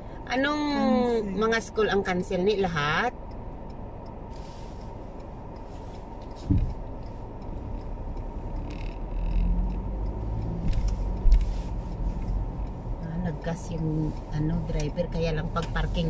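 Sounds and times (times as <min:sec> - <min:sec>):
engine and tyre rumble: 0:00.0 - 0:16.0
thump: 0:06.5 - 0:06.7.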